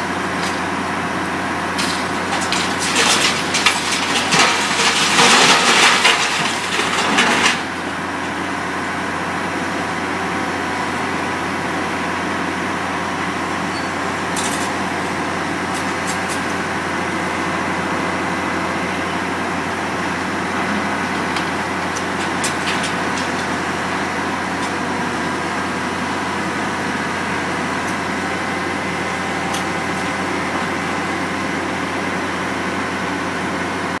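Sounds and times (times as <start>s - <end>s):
demolition debris crunching: 0.0s - 9.1s, 13.3s - 33.0s
heavy machine engine running: 0.0s - 34.0s.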